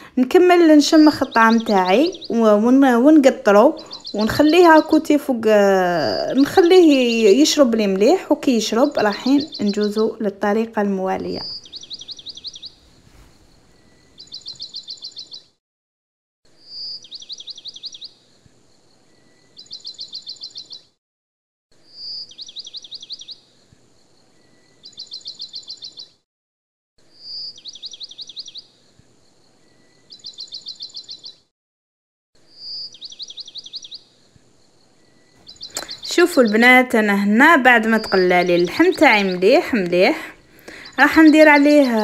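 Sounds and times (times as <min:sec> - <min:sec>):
songbird whistle and trill: 0:00.9 - 0:02.8, 0:03.7 - 0:05.0, 0:09.0 - 0:10.0, 0:11.3 - 0:15.6, 0:16.6 - 0:18.2, 0:19.1 - 0:21.0, 0:21.9 - 0:23.4, 0:24.4 - 0:26.2, 0:27.2 - 0:28.7, 0:29.6 - 0:31.5, 0:32.5 - 0:34.1, 0:35.1 - 0:37.0, 0:37.8 - 0:42.0.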